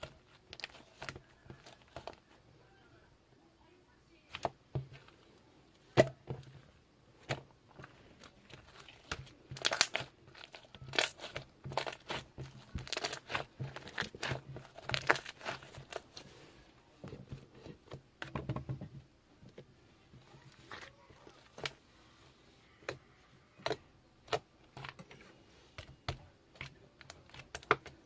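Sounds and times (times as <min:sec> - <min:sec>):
crinkling and rustling: 0:00.0 - 0:02.4, 0:06.0 - 0:21.9
faint low hum: 0:00.0 - 0:28.0.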